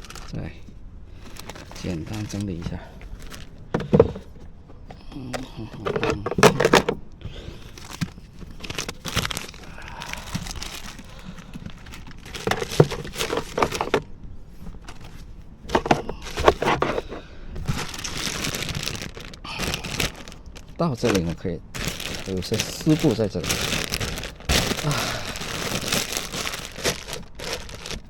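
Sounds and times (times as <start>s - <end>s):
plastic packaging crinkling: 0.0s - 28.0s
small items clicking and knocking: 7.7s - 14.1s, 14.7s - 28.0s.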